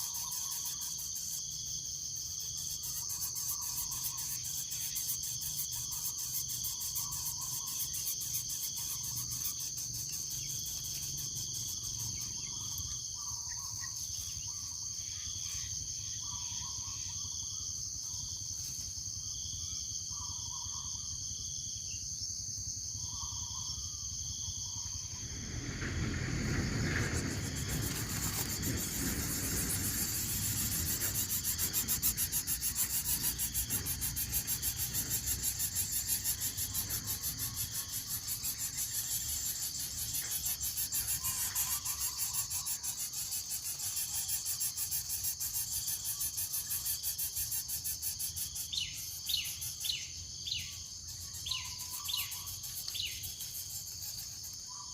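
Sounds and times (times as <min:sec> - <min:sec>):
insects shrilling drone: 0:00.0 - 0:54.9
rustling rubbing noise: 0:25.9 - 0:35.2.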